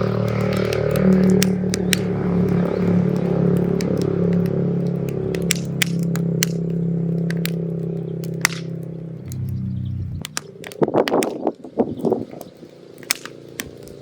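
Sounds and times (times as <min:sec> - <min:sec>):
firewood crackling and popping: 0:00.0 - 0:14.0
low hum of held tones: 0:00.0 - 0:14.0.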